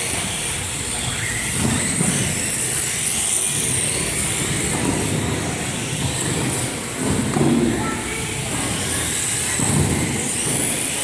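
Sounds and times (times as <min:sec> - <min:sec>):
high-pitched motor whine: 0:00.0 - 0:07.0
rc car motors and tyres: 0:00.0 - 0:11.0.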